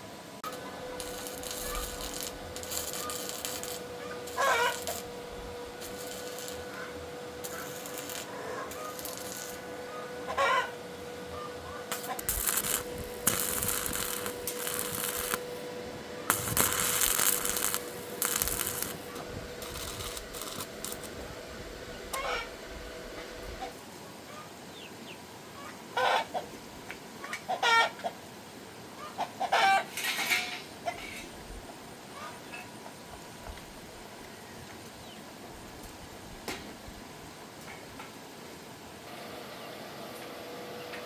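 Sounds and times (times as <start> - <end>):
faint steady hum: 0.0 - 27.2
short bursts of hiss: 0.4 - 10.7, 11.7 - 21.2
chicken calling: 0.5 - 15.4, 22.1 - 22.6, 27.2 - 28.0.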